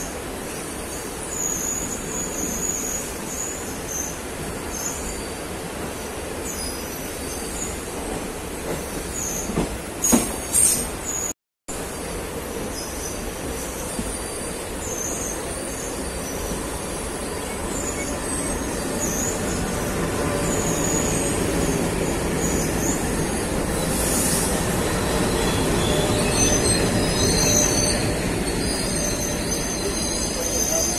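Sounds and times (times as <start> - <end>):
train wheels running on rails: 0.0 - 30.9
high wheel squeals: 14.0 - 30.9.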